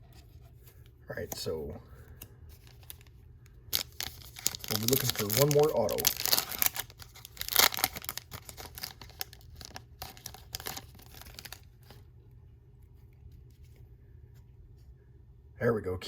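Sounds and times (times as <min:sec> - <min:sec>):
foil wrapper tearing and crinkling: 0:02.6 - 0:12.0.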